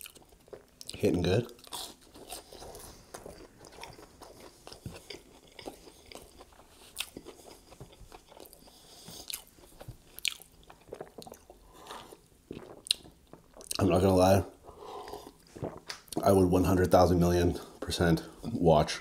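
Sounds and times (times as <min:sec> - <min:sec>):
wet chewing: 0:00.0 - 0:16.3
sharp mouth clicks and smacks: 0:15.6 - 0:16.2.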